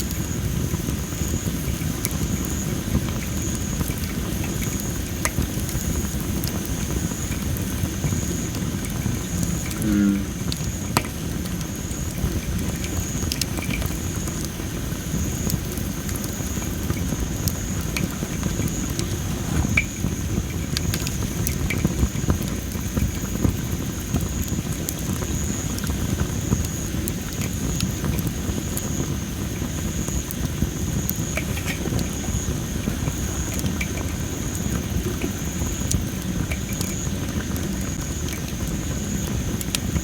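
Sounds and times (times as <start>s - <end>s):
campfire crackling and popping: 0.0s - 40.0s.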